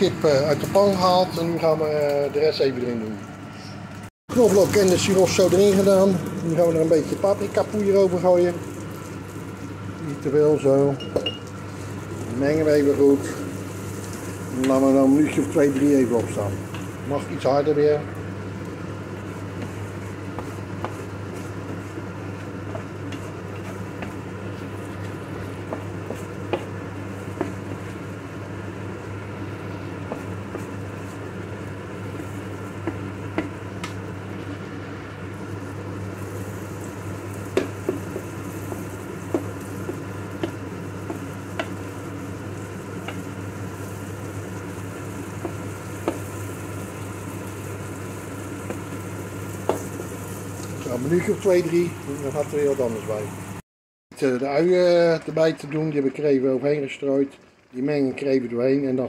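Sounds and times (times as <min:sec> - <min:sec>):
food sizzling in a pan: 0:03.8 - 0:53.6
spatula clicking and scraping: 0:19.3 - 0:28.0.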